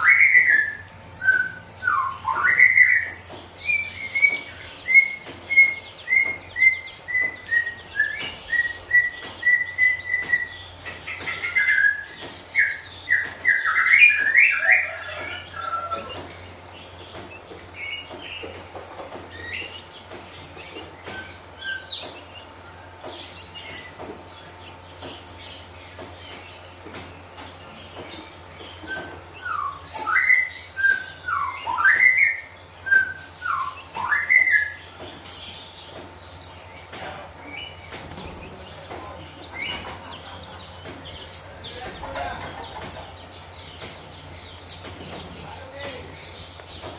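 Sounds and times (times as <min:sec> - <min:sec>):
bird singing whistled notes: 0:00.0 - 0:16.1, 0:28.7 - 0:36.6
low steady hum: 0:00.0 - 0:46.9.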